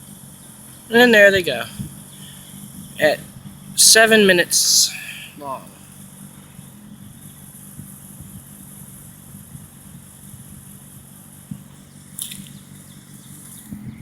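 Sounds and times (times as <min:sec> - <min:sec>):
high hiss: 0:00.0 - 0:06.0
diesel engine humming: 0:00.0 - 0:14.0.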